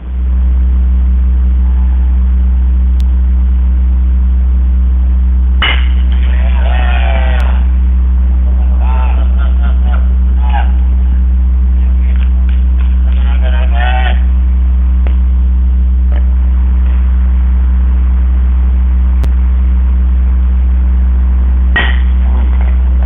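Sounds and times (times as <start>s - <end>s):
low electrical hum: 0.0s - 23.0s
person calling: 13.1s - 14.3s.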